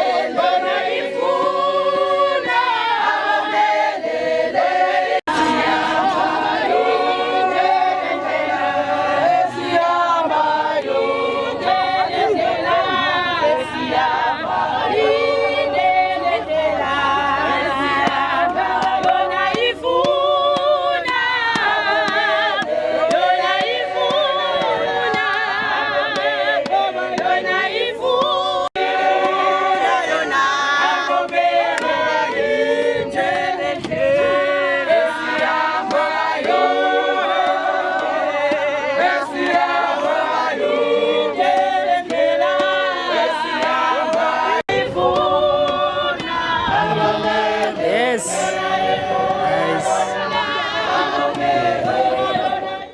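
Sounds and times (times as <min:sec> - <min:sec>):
choir singing in harmony: 0:00.0 - 0:52.9.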